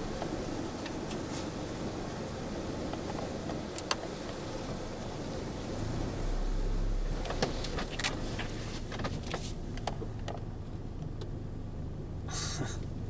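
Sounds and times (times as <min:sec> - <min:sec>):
car engine humming: 0:00.0 - 0:13.0
low rumble: 0:04.8 - 0:09.8.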